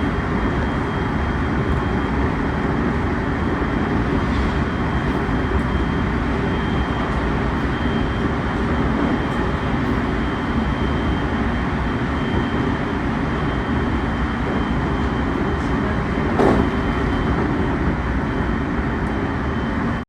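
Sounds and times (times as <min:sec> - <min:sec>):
train rolling rumble: 0:00.0 - 0:20.0
train clank: 0:15.0 - 0:17.6.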